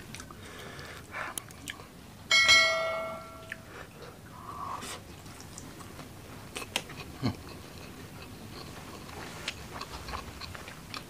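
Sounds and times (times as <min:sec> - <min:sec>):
person chewing with wet smacking: 0:00.0 - 0:02.0, 0:03.4 - 0:03.7, 0:05.2 - 0:11.0.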